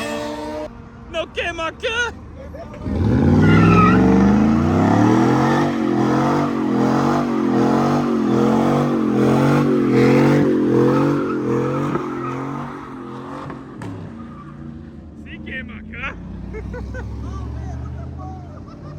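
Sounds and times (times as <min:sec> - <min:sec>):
car engine revving hard: 0:02.8 - 0:14.1, 0:16.2 - 0:18.2.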